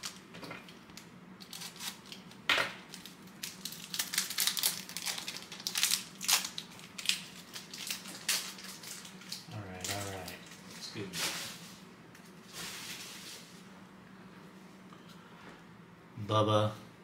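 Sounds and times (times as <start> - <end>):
wrapper tearing and crinkling: 0.0 - 0.3, 1.0 - 11.6.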